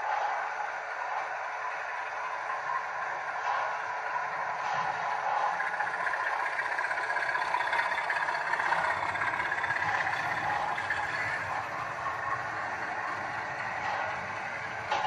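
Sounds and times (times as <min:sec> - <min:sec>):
diesel engine sound from small speaker: 0:01.2 - 0:15.0.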